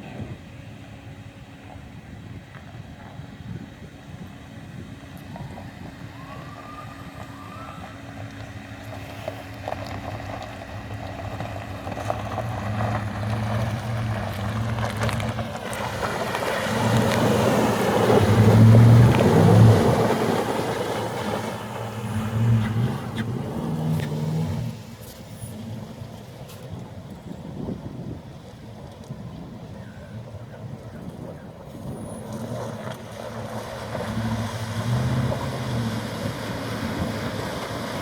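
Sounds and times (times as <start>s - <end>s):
suv engine pulling through water: 0.0s - 38.0s
water rushing and splashing: 12.5s - 26.5s, 32.3s - 38.0s.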